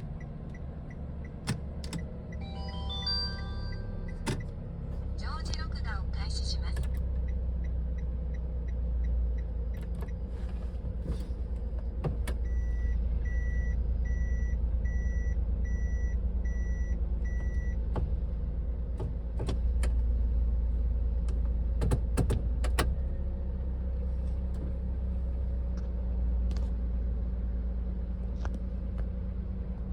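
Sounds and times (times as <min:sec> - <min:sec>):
car engine idling: 0:00.0 - 0:29.9
in-car warning chime: 0:02.2 - 0:06.6, 0:12.4 - 0:17.8.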